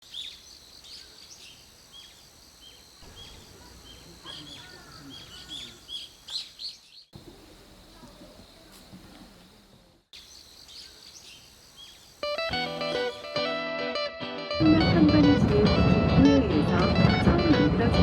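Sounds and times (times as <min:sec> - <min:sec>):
small birds chirping: 0:00.0 - 0:13.2
quiet outdoor ambience: 0:00.0 - 0:13.6.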